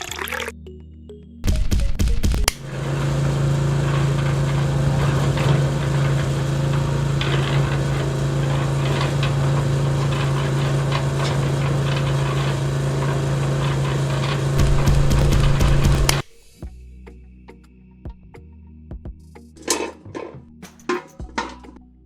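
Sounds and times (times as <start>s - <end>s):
small motor humming: 2.5s - 16.3s.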